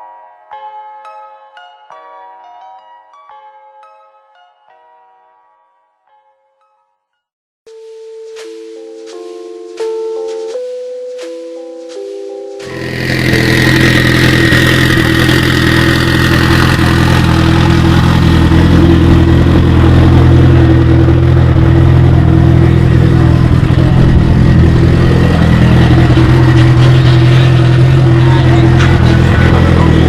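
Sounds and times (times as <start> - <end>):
car engine running loudly: 12.6 - 30.0.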